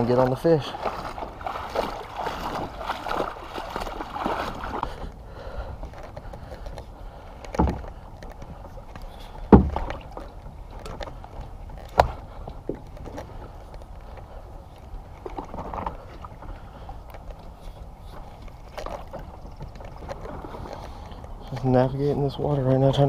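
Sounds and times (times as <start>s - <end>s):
water splashing and sloshing: 0.0s - 23.0s
sharp knocks against kayak: 7.5s - 8.4s, 9.0s - 11.1s, 11.8s - 13.3s.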